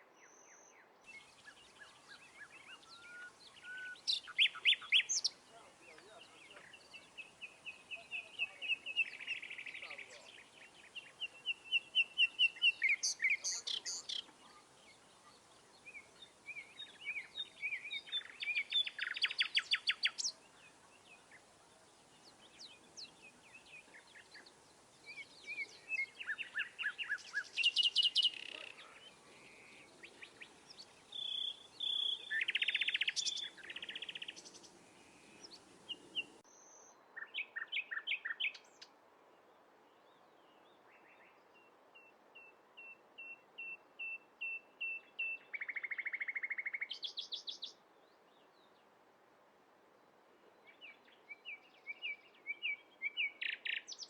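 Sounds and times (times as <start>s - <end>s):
songbirds chirping and trilling: 0.0s - 49.1s, 50.1s - 54.0s
steady background hiss: 0.0s - 54.0s.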